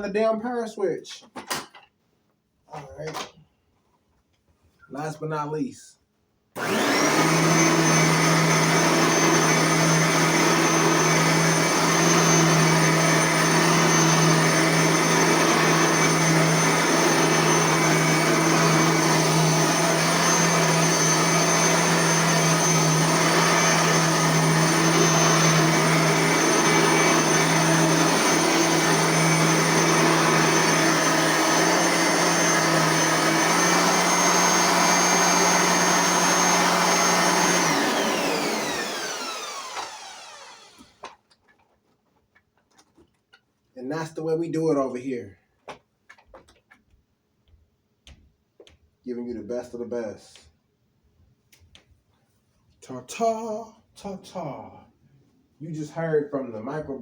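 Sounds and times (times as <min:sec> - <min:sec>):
vacuum cleaner motor whining: 0:06.6 - 0:41.2.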